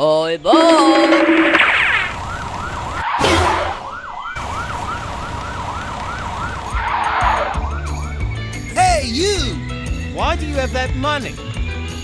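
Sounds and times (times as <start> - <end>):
siren in fast yelp: 0.5 - 8.2.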